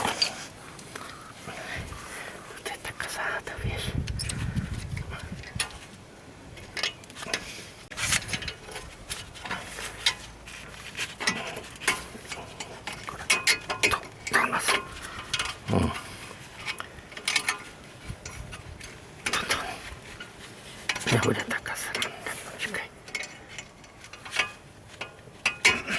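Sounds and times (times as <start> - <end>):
metal tools and brake parts clinking: 11.1 - 20.3, 20.9 - 25.9.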